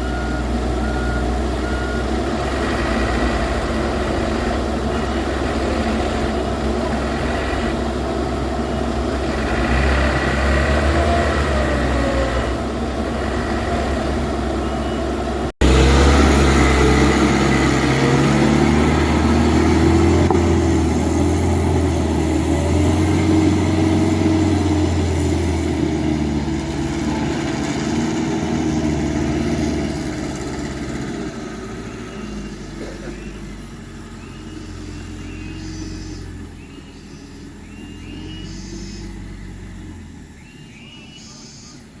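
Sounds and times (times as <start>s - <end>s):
truck engine humming: 0.0s - 42.0s
faint high chirps: 31.6s - 42.0s.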